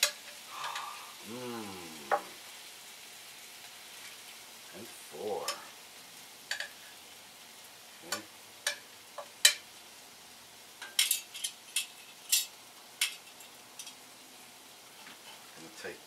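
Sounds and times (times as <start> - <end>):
faint sizzle from grill: 0.0 - 16.0
cooking utensil clinking: 6.5 - 6.8, 10.8 - 14.0.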